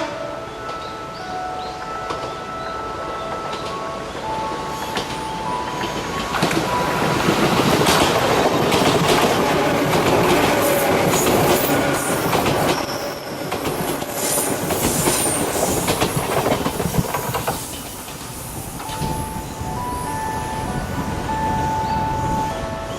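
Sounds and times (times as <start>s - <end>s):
electric train passing: 0.0s - 22.9s
wheels clicking over rail joints: 3.0s - 19.4s.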